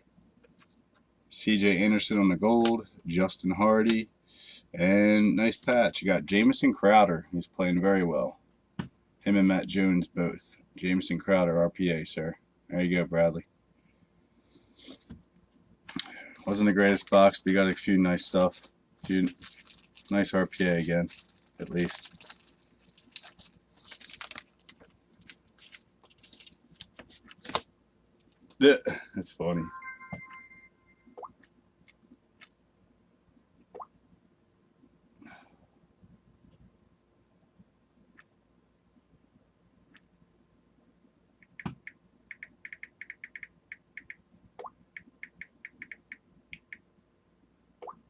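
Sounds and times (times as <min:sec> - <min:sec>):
small objects clicking and rustling: 0:15.9 - 0:17.2, 0:18.3 - 0:27.6.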